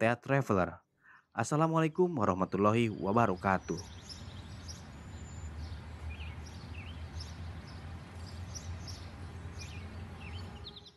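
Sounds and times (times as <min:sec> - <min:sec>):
low hum of outdoor ambience: 0:01.4 - 0:10.9
birds chirping and calling: 0:02.2 - 0:10.9.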